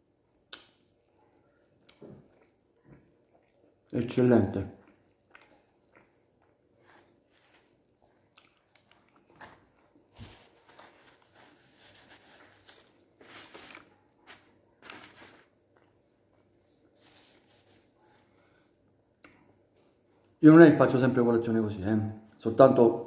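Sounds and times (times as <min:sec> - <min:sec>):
man chewing: 0:04.8 - 0:18.0
soft rustles and clicks: 0:06.7 - 0:18.5.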